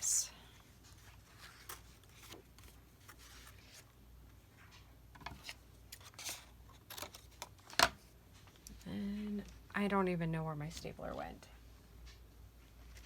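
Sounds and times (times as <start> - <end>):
paper rustling: 0.6 - 4.0, 5.3 - 7.8.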